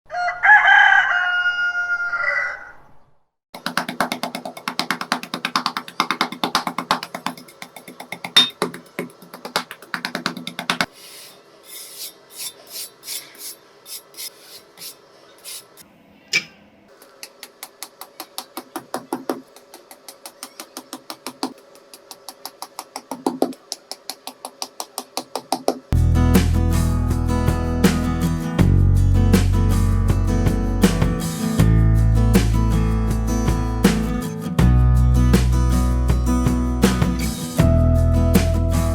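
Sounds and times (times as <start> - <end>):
rooster crowing: 0.1 - 3.0
plucked guitar music: 26.0 - 38.9.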